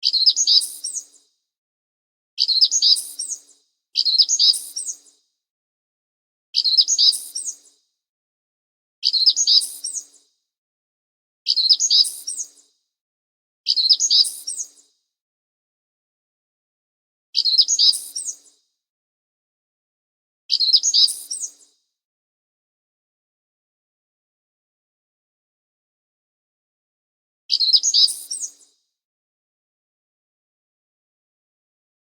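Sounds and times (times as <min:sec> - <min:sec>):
bird chirping: 0:00.0 - 0:01.2, 0:02.4 - 0:05.1, 0:06.6 - 0:07.7, 0:09.0 - 0:10.2, 0:11.5 - 0:12.5, 0:13.7 - 0:14.8, 0:17.4 - 0:18.5, 0:20.5 - 0:21.6, 0:27.5 - 0:28.6.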